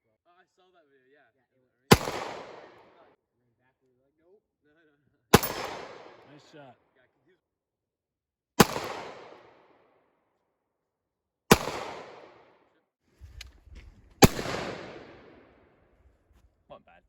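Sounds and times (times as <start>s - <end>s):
echoing gunshots: 1.9s - 3.0s, 5.4s - 6.4s, 8.6s - 9.7s, 11.5s - 12.6s, 14.2s - 16.1s
gun handling clicks and knocks: 5.4s - 6.3s, 13.2s - 15.4s.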